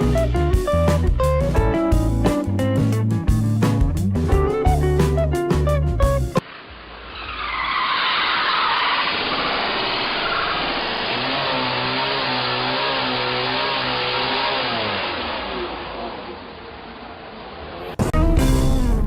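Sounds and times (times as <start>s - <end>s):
car tyres screeching: 6.5s - 18.0s.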